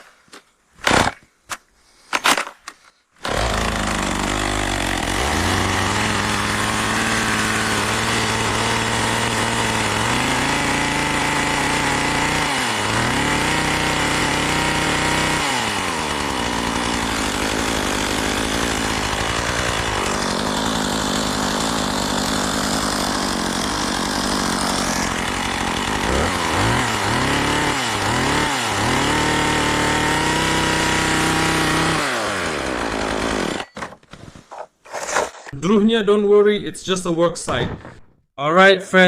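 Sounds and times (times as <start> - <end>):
chainsaw running and revving: 3.2 - 33.6.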